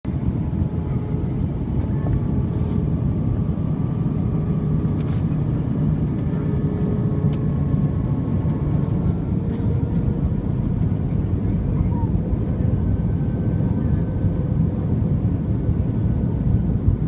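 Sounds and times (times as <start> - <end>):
aircraft engine and airflow noise: 0.1 - 17.0.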